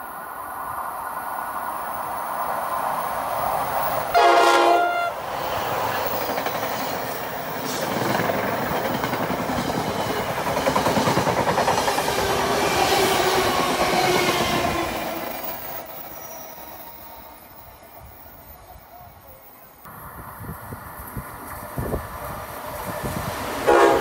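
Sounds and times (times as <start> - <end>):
train horn blast: 4.1 - 5.2, 23.6 - 24.0
wheels clattering on rails: 5.5 - 13.0.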